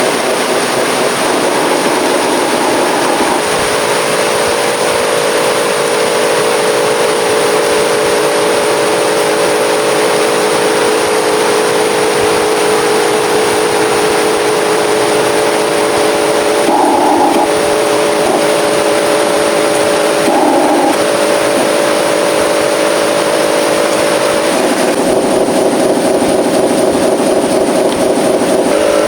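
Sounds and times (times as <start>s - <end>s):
constant loud hiss: 0.0s - 27.5s
toy truck motor tone: 1.1s - 3.4s, 16.2s - 24.8s.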